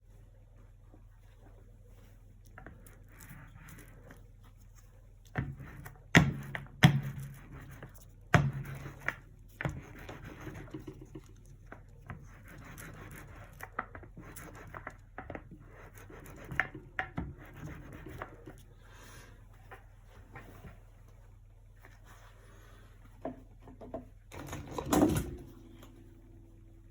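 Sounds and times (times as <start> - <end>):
paintbrush scratching on canvas: 0.6 - 20.6.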